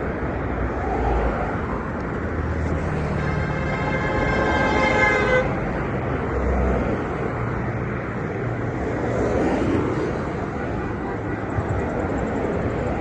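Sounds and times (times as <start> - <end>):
road traffic noise: 0.0 - 13.0
vehicle horn blaring: 3.1 - 5.8.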